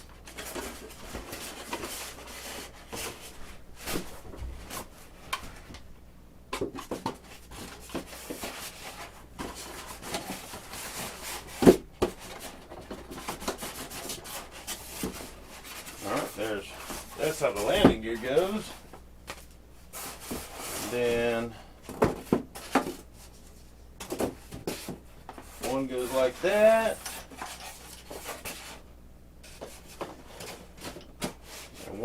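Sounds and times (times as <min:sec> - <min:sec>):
parts rubbing against foam: 0:07.2 - 0:18.8, 0:19.9 - 0:21.5, 0:24.7 - 0:32.0.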